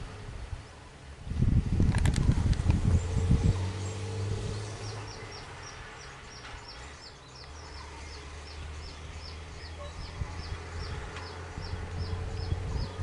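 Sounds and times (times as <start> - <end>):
vehicle engines idling: 0.0 - 13.0
bird chirping: 2.9 - 13.0.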